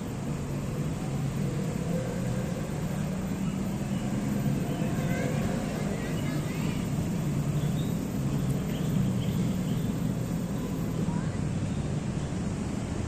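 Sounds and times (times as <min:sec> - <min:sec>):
road traffic rumble: 0:00.0 - 0:13.0
faint high chirps: 0:03.1 - 0:12.4.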